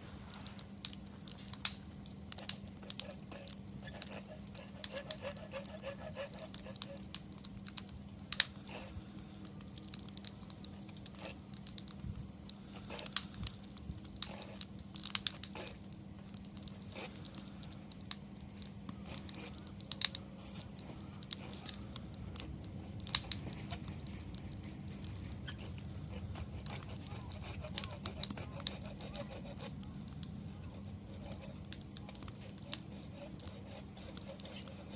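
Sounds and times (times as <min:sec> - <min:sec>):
campfire crackling and popping: 0:00.0 - 0:34.9.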